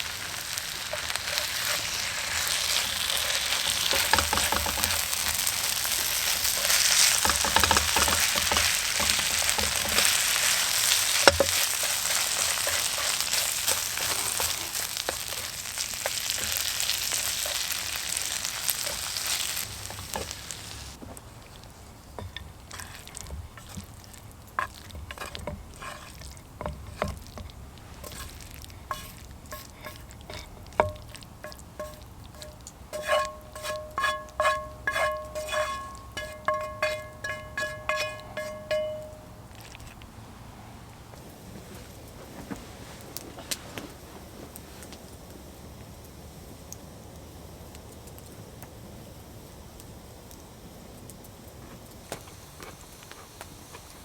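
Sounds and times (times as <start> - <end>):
stir-fry sizzling in a pan: 0.0 - 54.0
stirring clicks: 0.6 - 20.5, 21.3 - 40.1.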